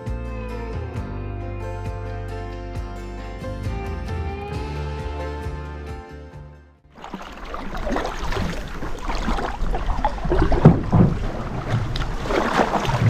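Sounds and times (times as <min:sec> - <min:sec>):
knocks against boat: 0:07.0 - 0:13.0
water splashing around canoe: 0:07.0 - 0:13.0
wind buffeting microphone: 0:07.2 - 0:13.0.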